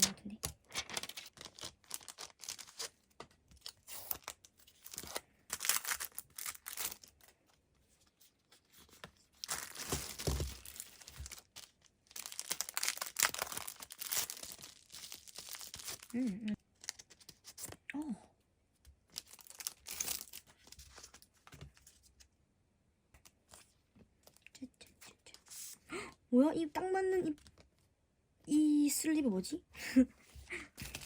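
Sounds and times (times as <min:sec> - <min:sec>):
tape and plastic wrapping tearing: 0:03.6 - 0:07.2, 0:09.4 - 0:16.2.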